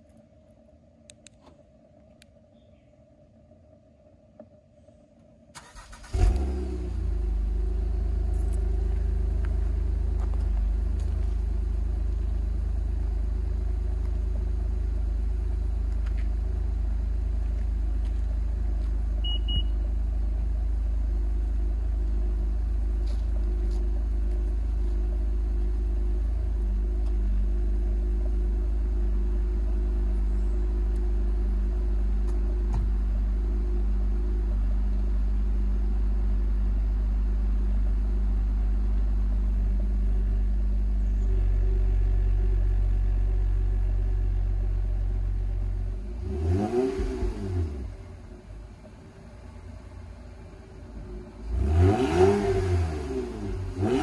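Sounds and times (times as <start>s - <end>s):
car engine starting and idling: 0.0s - 54.0s
low exhaust drone: 0.0s - 54.0s
double beep: 19.2s - 19.8s.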